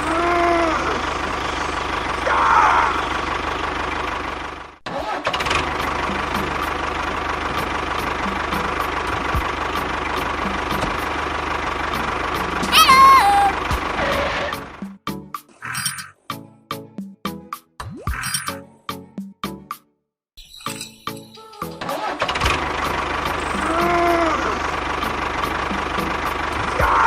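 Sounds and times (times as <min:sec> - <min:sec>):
engine running: 0:00.0 - 0:15.2, 0:21.5 - 0:27.0
short high bending cries: 0:12.7 - 0:14.5.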